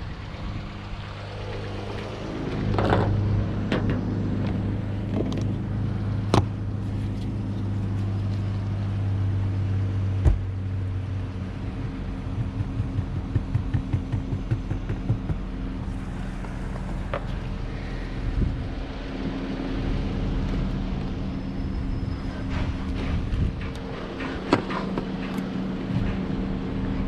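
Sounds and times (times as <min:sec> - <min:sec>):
low mechanical hum: 0:00.0 - 0:27.0
quick uneven low thumps: 0:12.2 - 0:15.5.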